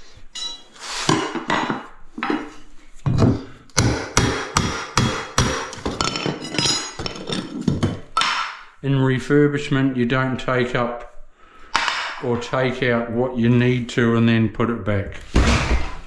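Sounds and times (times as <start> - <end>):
hammer striking ceramic tiles: 0.4 - 2.5, 3.1 - 8.7, 11.7 - 12.3.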